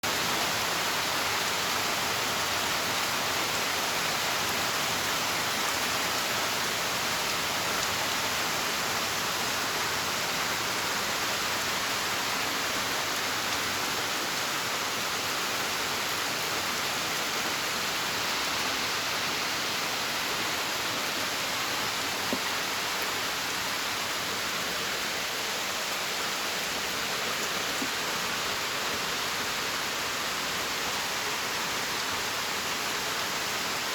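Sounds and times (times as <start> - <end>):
rushing water hiss: 0.0 - 33.9.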